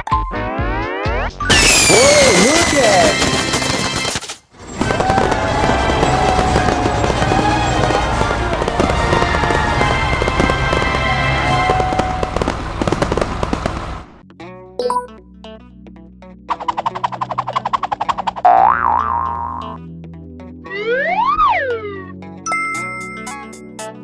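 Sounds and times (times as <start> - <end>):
dense crackling and popping: 1.5 - 14.2.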